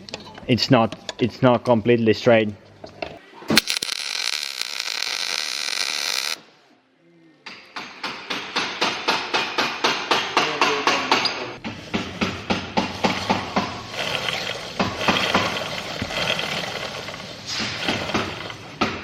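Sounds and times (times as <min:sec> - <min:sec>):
steady hissing: 0:13.0 - 0:18.8.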